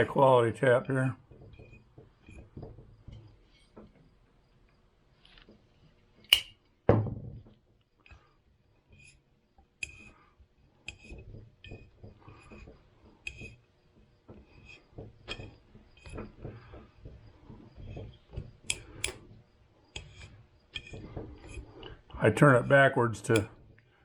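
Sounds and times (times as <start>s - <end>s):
hand tap squeaky clicks: 6.2s - 6.6s
sharp metallic clicks: 6.3s - 6.7s, 23.2s - 23.5s.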